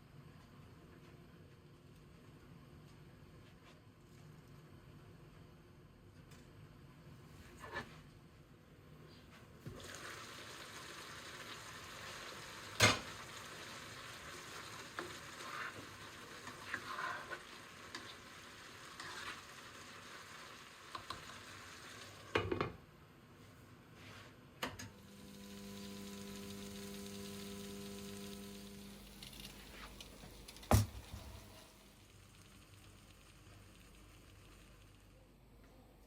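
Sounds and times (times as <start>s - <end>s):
food sizzling in oil: 9.8s - 22.3s, 25.0s - 34.7s
appliance humming drone: 24.8s - 33.2s.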